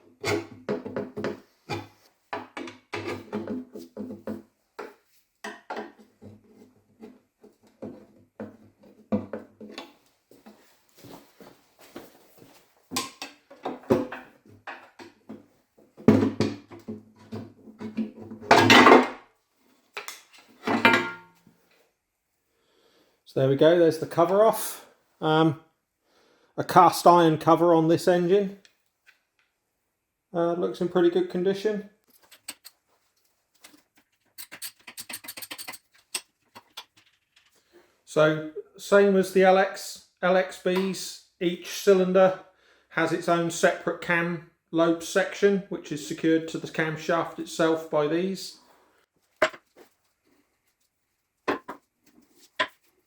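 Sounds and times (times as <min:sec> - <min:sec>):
metal parts and tools clicking: 0:32.1 - 0:32.8, 0:33.7 - 0:37.5
metal scraping: 0:34.2 - 0:37.5.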